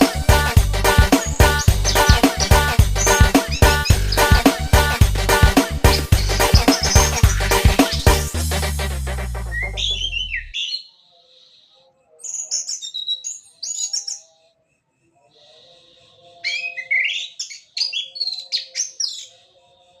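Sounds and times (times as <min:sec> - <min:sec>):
bass-heavy background music: 0:00.0 - 0:10.5
thrush singing: 0:00.0 - 0:10.5.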